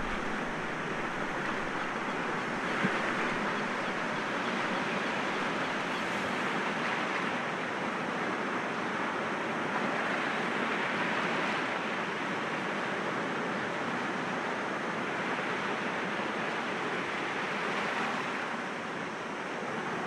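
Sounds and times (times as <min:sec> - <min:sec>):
sea waves washing against rocks: 0:00.0 - 0:06.4.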